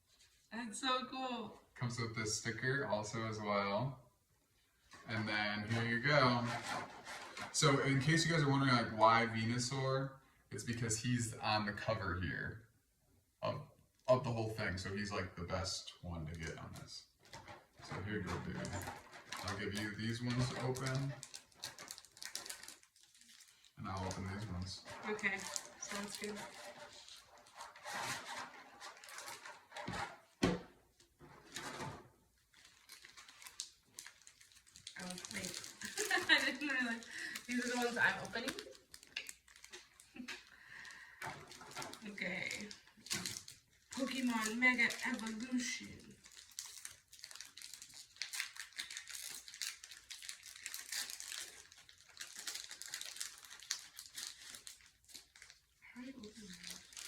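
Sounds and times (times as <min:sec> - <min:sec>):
foil wrappers crinkling: 0:05.0 - 0:09.8, 0:17.2 - 0:30.1, 0:31.4 - 0:57.0
thump: 0:30.4 - 0:30.8.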